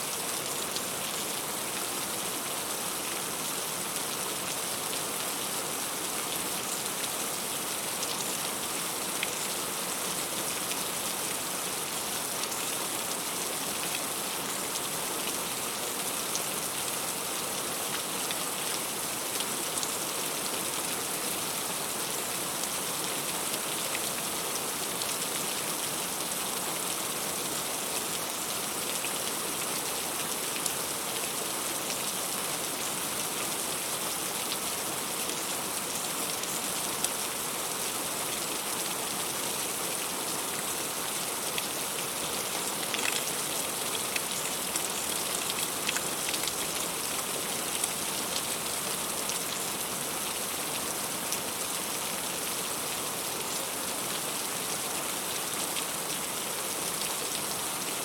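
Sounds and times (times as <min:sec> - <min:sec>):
heavy rain falling: 0:21.0 - 0:54.4.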